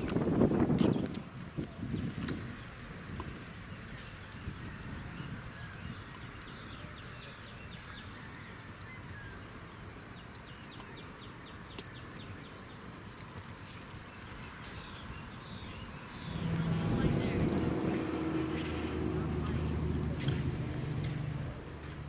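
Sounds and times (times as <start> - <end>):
small birds chirping: 0.0 - 22.0
steady low rumble: 16.1 - 22.0.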